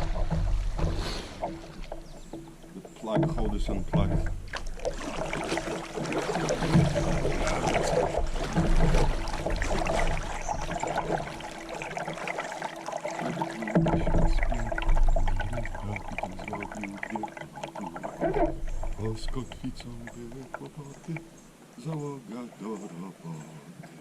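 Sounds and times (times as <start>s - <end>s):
small knocks and splashes: 0.0s - 22.9s
water sloshing around kayak: 0.0s - 24.0s.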